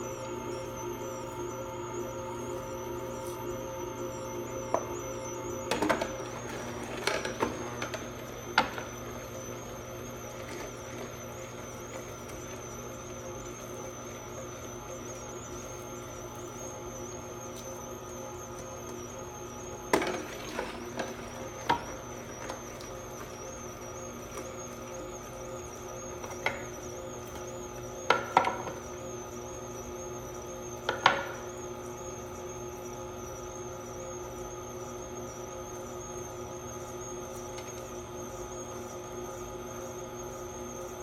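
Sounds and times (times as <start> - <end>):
steady hum: 0.0 - 30.4.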